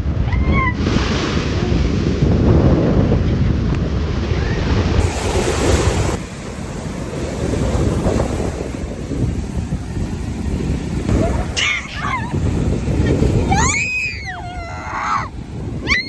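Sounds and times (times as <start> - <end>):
wind buffeting microphone: 0.0 - 16.0
ocean surf: 4.0 - 16.0.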